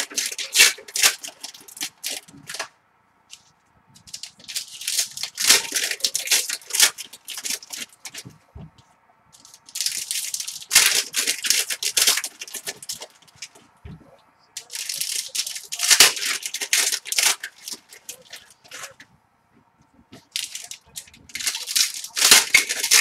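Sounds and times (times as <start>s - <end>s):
foil wrappers crinkling: 0.0s - 2.7s, 3.3s - 8.5s, 9.4s - 13.8s, 14.6s - 19.1s, 20.0s - 23.0s.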